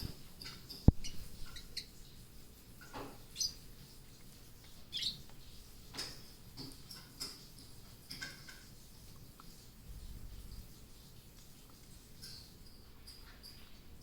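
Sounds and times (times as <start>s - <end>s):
parrots chirping: 0.0s - 2.2s, 2.9s - 3.7s, 4.6s - 5.2s.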